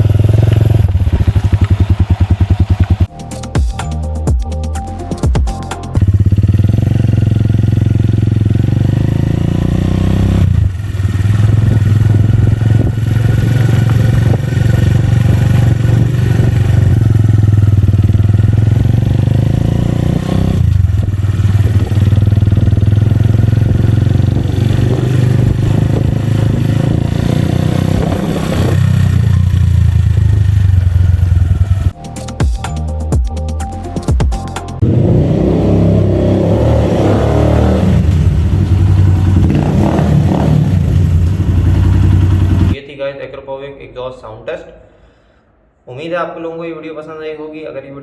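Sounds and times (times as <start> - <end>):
loud motorcycle engine running: 0.0 - 3.1, 6.0 - 32.0, 34.8 - 42.8.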